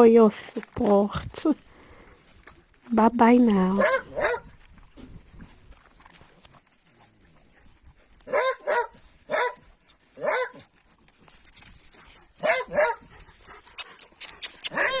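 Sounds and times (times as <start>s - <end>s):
dogs barking: 3.8s - 4.5s, 8.2s - 9.6s, 10.2s - 10.6s, 12.4s - 13.1s, 14.7s - 15.0s.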